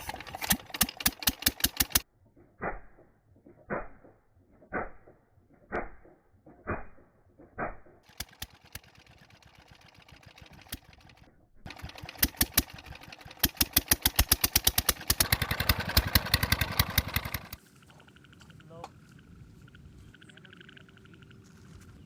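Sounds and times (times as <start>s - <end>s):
diesel engine starting: 0.0s - 2.0s, 8.1s - 18.8s.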